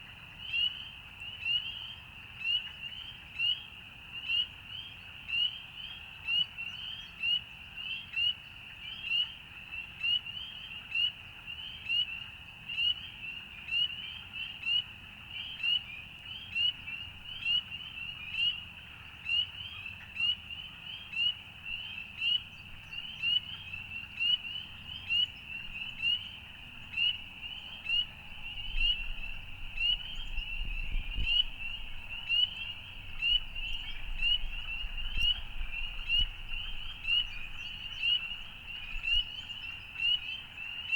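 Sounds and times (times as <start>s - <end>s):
frogs calling: 13.7s - 40.9s.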